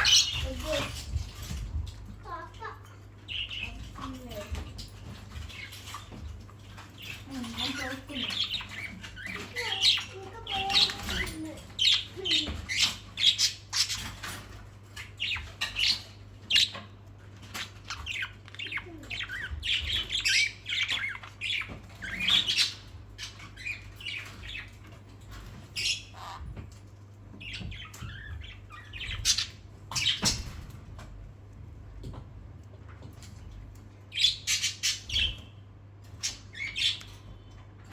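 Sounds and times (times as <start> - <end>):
parrots squawking and chirping: 0.0 - 31.0, 33.2 - 37.9.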